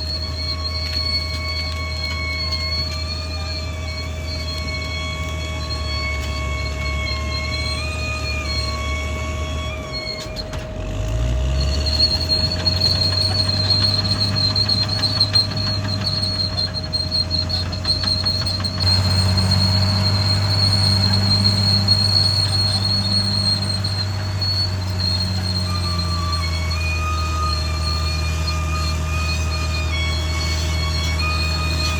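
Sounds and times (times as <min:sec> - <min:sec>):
bulldozer diesel engine: 0:00.0 - 0:31.9
high-pitched squeal of tracks: 0:00.0 - 0:31.9
steel tracks clattering: 0:09.8 - 0:31.9.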